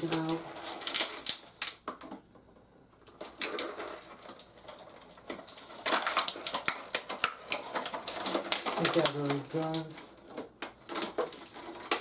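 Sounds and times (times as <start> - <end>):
plastic packaging crinkling: 0.0 - 2.2, 3.0 - 12.0.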